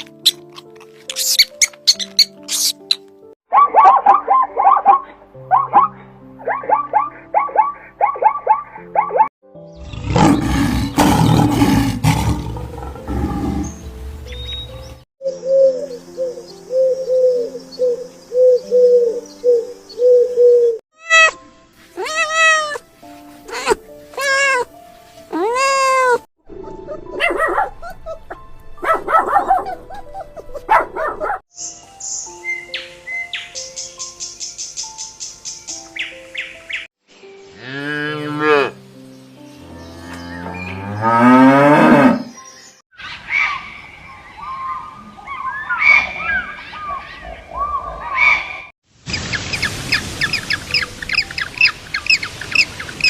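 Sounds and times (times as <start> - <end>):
background music: 0.0 - 43.4
dog barking and yipping: 3.5 - 9.3, 26.9 - 31.4
cow mooing: 37.6 - 38.8, 40.0 - 42.4.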